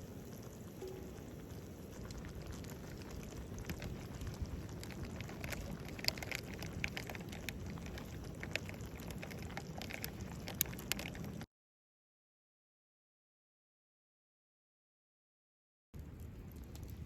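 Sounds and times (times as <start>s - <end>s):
campfire crackling: 0.0s - 11.5s, 16.0s - 17.0s.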